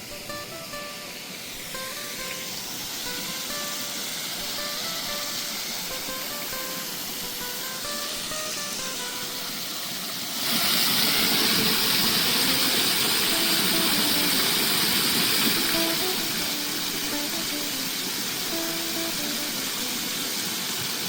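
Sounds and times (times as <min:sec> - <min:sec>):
plucked guitar music: 0:00.0 - 0:10.0, 0:11.0 - 0:20.7
loud steady rushing hiss: 0:00.0 - 0:21.0.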